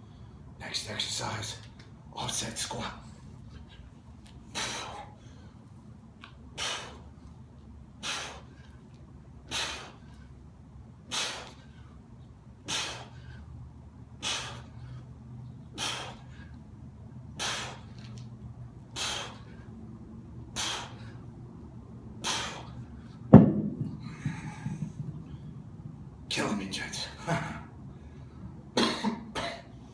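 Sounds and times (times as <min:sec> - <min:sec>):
man breathing hard: 0:03.5 - 0:05.8, 0:06.6 - 0:07.3, 0:08.0 - 0:12.0, 0:12.6 - 0:18.2, 0:18.8 - 0:23.3, 0:23.9 - 0:25.8, 0:27.2 - 0:28.6
loud thud: 0:23.3 - 0:25.1.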